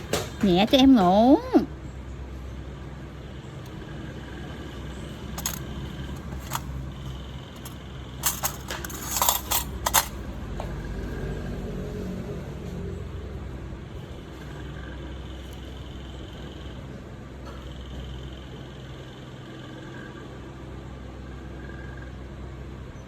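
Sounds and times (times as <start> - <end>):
steady low hum: 1.7 - 11.6
clicks of small hard objects: 5.4 - 6.7, 7.6 - 10.2.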